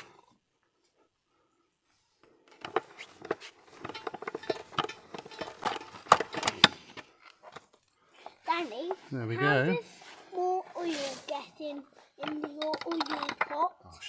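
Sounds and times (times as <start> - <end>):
hands handling tools: 2.2 - 9.0.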